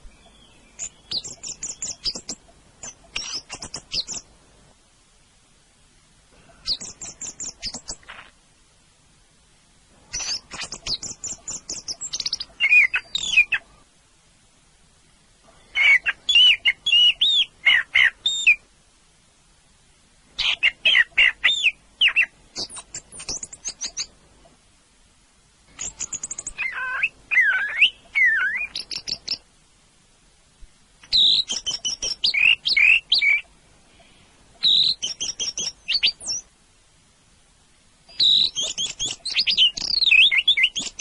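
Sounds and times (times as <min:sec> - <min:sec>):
thrush singing whistled notes: 0:00.0 - 0:04.3, 0:10.2 - 0:13.6, 0:15.6 - 0:18.6, 0:25.7 - 0:29.4, 0:31.1 - 0:33.4, 0:34.6 - 0:36.5, 0:38.1 - 0:41.0.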